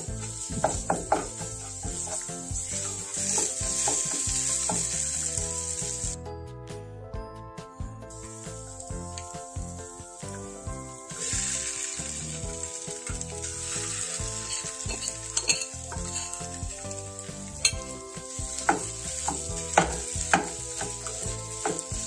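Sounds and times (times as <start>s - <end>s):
spatula scraping a pan: 0.0s - 5.1s, 11.1s - 22.0s
paste sizzling in a saucepan: 0.0s - 6.2s, 8.0s - 22.0s.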